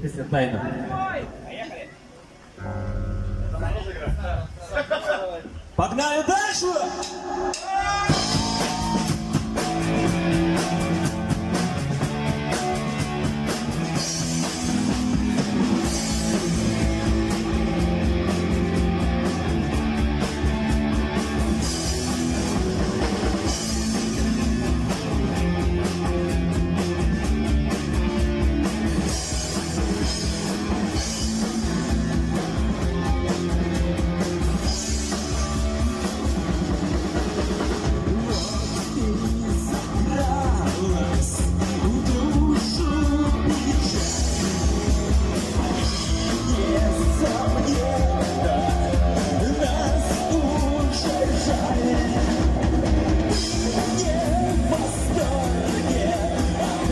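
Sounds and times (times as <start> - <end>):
live rock band playing: 6.5 - 56.9.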